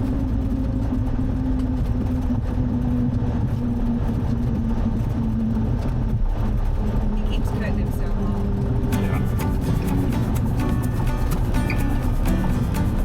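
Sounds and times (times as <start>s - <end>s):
propeller plane engine droning: 0.0s - 13.0s.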